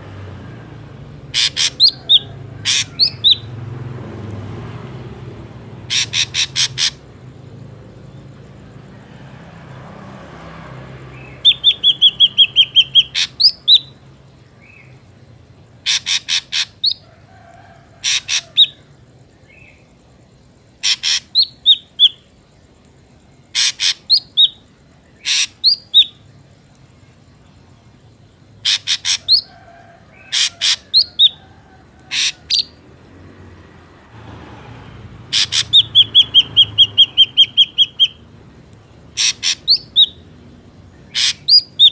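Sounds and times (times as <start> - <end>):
drongo calling sharp notes: 39.1 - 40.2.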